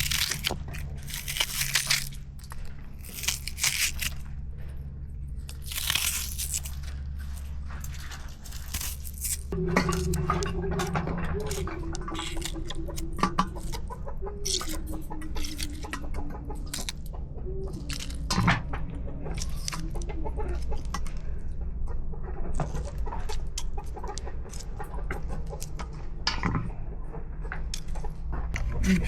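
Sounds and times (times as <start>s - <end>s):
hen clucking: 9.5s - 29.0s.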